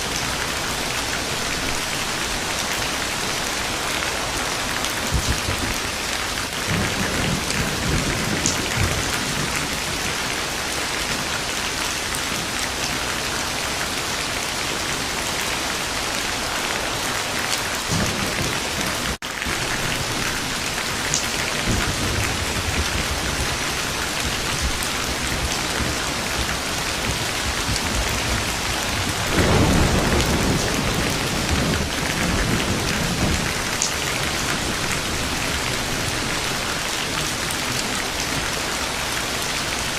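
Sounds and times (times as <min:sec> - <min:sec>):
heavy rain: 0:00.0 - 0:39.9
thunder rumbling: 0:00.0 - 0:39.9.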